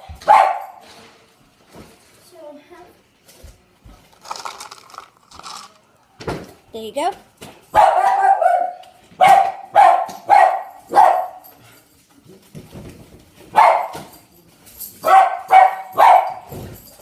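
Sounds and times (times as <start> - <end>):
dog barking: 0.2 - 0.8, 7.7 - 11.5, 13.5 - 14.1, 15.0 - 16.5.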